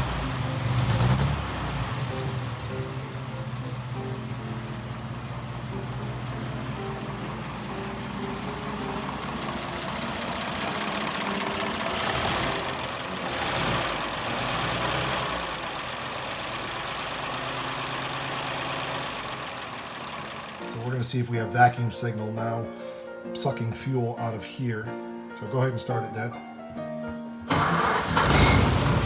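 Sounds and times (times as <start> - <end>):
background music: 0.0 - 16.2, 20.6 - 29.0
car engine running: 0.0 - 21.0, 27.5 - 29.0.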